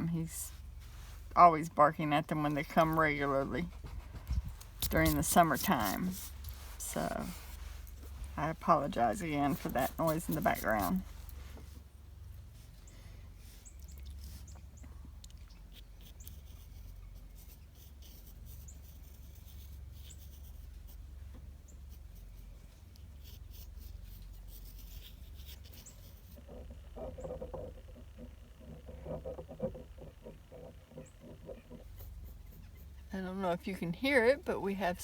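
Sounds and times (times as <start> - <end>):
pencil scratching on paper: 3.6 - 11.2, 15.7 - 21.0, 21.9 - 26.5, 30.5 - 33.1
songbirds chirping: 6.3 - 17.4, 25.7 - 35.0.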